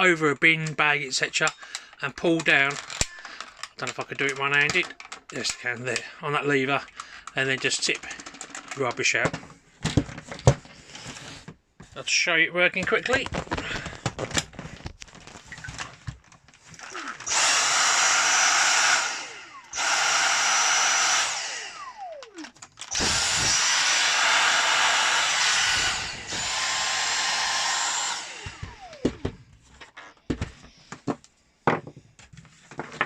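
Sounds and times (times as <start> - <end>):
handheld vacuum cleaner whine: 16.7 - 30.6.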